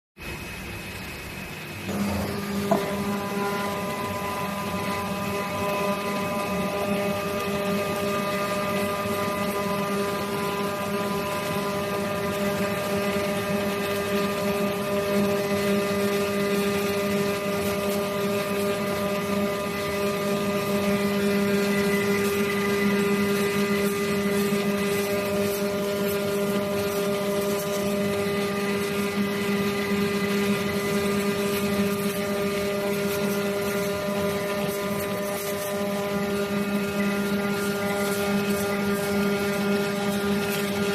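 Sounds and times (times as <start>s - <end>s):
cutting machine humming: 0.2s - 40.9s.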